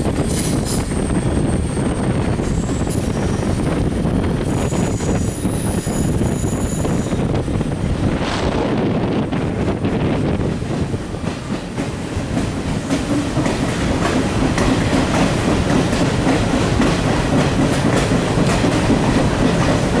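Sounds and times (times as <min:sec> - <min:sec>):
wind rushing past microphone: 0:00.0 - 0:13.0
train wheels rumbling on rails: 0:00.0 - 0:20.0.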